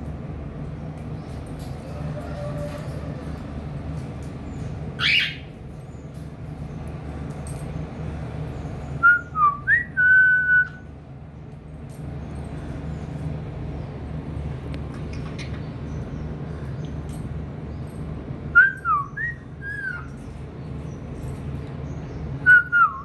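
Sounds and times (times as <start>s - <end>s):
cockatiel chirping and whistling: 5.0s - 5.5s.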